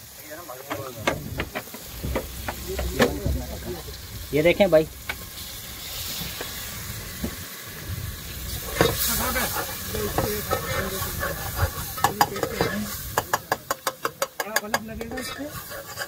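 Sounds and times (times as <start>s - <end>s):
onions and tomatoes sizzling: 0.0s - 16.0s
metal spoon scraping pot: 8.7s - 16.0s.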